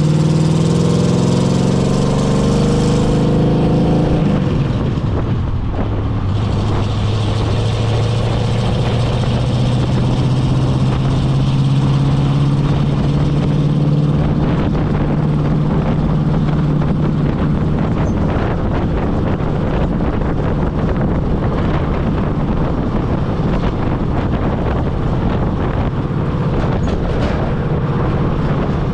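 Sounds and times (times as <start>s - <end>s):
pickup truck engine running: 0.0s - 28.9s
wind and road noise: 0.0s - 28.9s.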